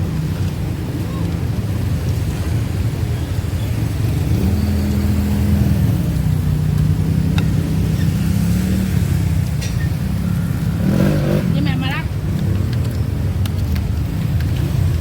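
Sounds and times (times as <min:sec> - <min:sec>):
vehicle engine humming: 0:00.0 - 0:15.0
faint clicks: 0:12.3 - 0:15.0.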